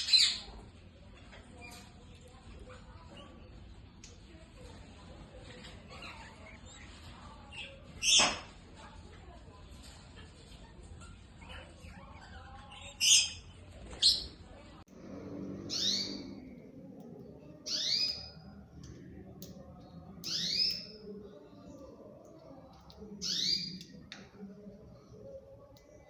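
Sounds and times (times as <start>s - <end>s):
birds squawking harshly: 15.6s - 16.4s.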